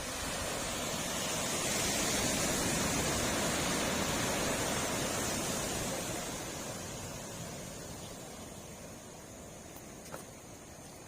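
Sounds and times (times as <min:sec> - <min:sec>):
wind rushing on microphone: 0:00.0 - 0:10.8.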